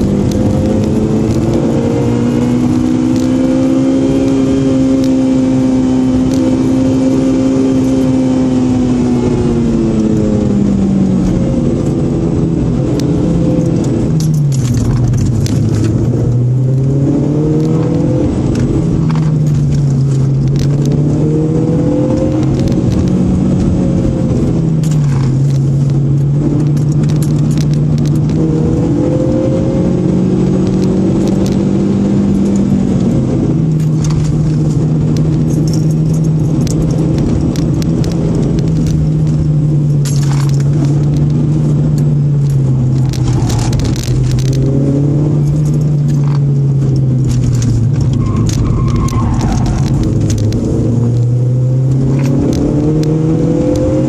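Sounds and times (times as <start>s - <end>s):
car engine accelerating: 0.0s - 54.0s
light rattling clicks: 12.9s - 16.4s, 24.8s - 28.4s, 32.4s - 44.8s.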